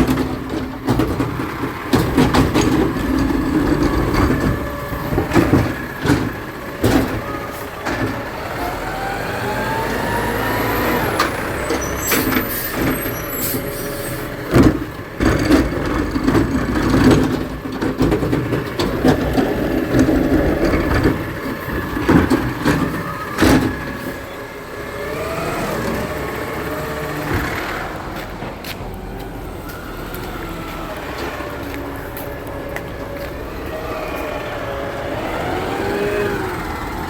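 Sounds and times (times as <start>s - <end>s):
loud bangs and clatter: 0.0s - 8.5s
garbage truck engine whining: 0.0s - 37.0s.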